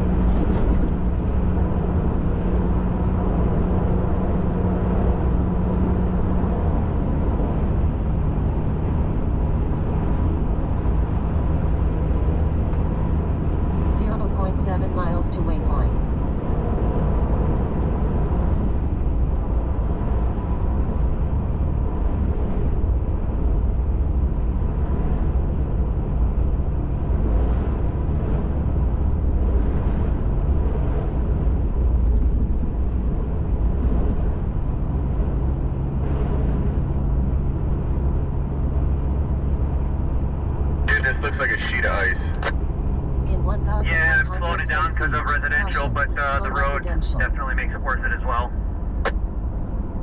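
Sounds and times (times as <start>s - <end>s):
pickup engine and tyre rumble: 0.0s - 50.0s
faint steady hum: 40.8s - 49.2s.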